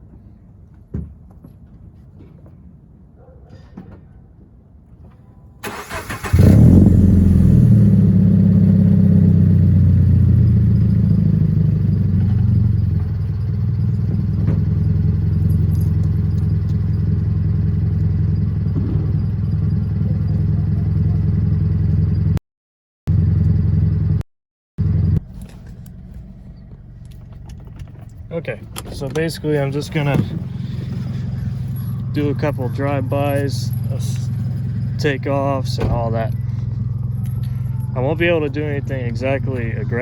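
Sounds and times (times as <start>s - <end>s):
starter cranking: 5.6s - 6.8s
car engine flaring and idling: 5.6s - 22.4s, 23.1s - 24.2s, 24.8s - 40.0s.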